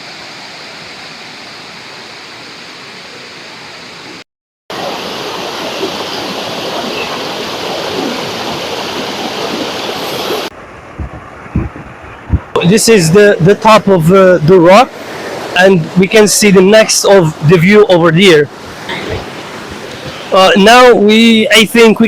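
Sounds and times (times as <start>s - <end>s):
small waterfall rushing: 0.0s - 11.0s, 14.6s - 16.9s, 18.4s - 22.0s
low thumps: 10.5s - 12.6s.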